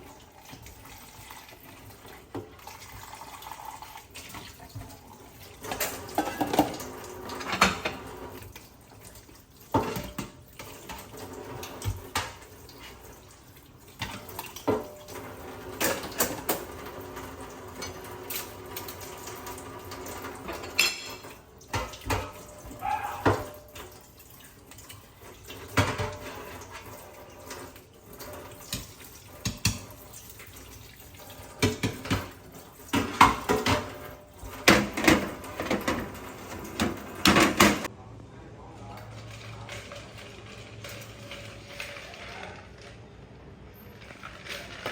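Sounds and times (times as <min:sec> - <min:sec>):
dishes and utensils clattering: 0:00.0 - 0:37.9, 0:39.0 - 0:43.0, 0:43.7 - 0:44.9
water running from a tap: 0:00.0 - 0:37.9.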